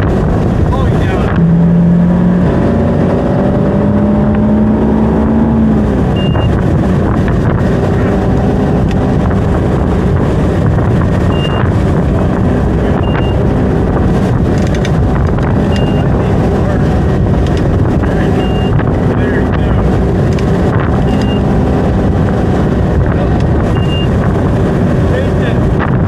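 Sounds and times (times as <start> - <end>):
boat engine running: 0.0 - 26.0
wind on microphone: 0.0 - 26.0
short high beeps: 6.2 - 6.5, 11.3 - 11.7, 13.0 - 13.4, 15.7 - 16.1, 18.4 - 18.8, 21.1 - 21.4, 23.7 - 24.1.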